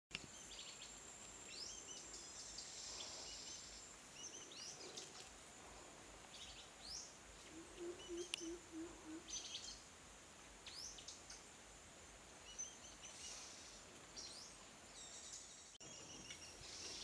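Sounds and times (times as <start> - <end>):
faint bird calls: 7.4 - 9.8.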